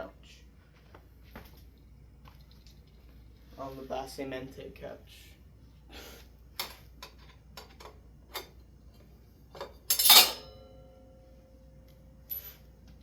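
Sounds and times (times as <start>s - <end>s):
loud ringing metallic clank: 9.9s - 11.0s.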